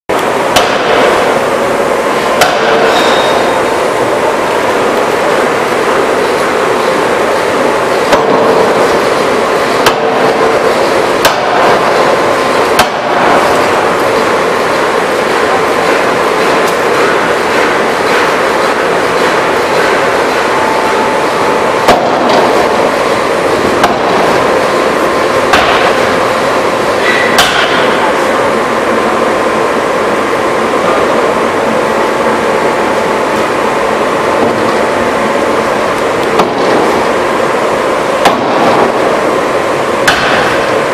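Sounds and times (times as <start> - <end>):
forging hammer blows: 0.1 - 5.5, 7.4 - 26.2, 27.0 - 28.3
loud machinery noise: 0.1 - 40.9.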